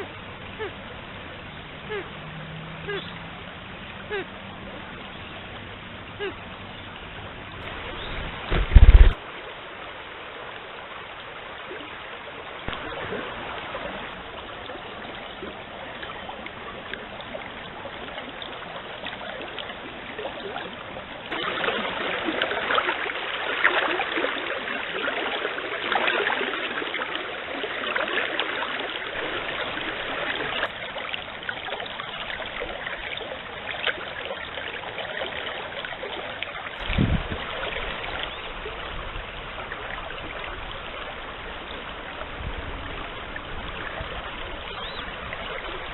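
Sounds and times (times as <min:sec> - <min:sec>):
stream water trickling: 0:00.0 - 0:45.9
loud low thump: 0:08.4 - 0:09.2.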